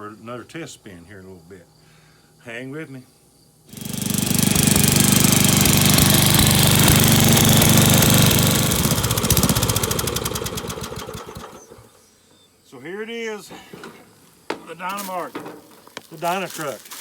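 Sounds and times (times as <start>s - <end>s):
riding mower engine running: 3.7s - 12.0s.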